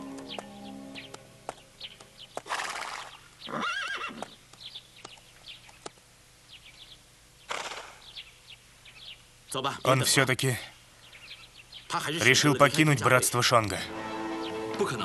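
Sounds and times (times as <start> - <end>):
birds chirping: 0.0 - 15.0
horse whinnying: 3.5 - 4.3
sharp clicks: 4.2 - 6.0.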